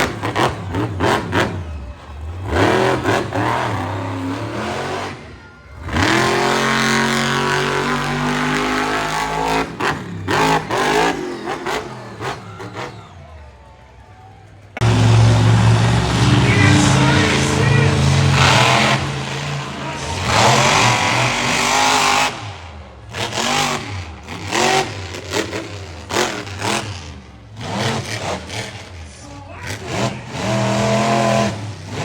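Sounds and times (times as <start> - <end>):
truck engines revving: 0.0 - 32.0.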